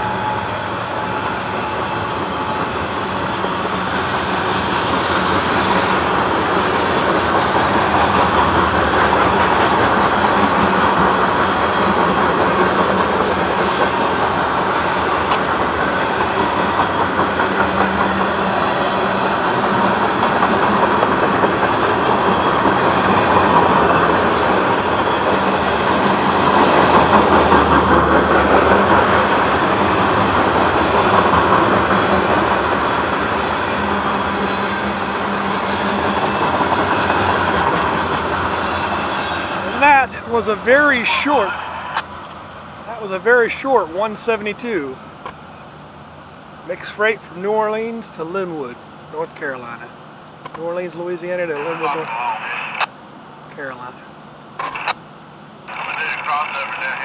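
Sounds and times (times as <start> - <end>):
freight train wheels clickety-clack: 0.0 - 45.4.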